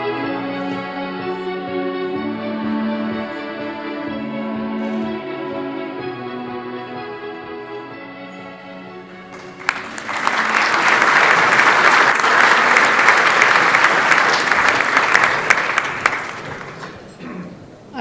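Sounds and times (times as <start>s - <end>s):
audience applauding: 9.1s - 17.2s.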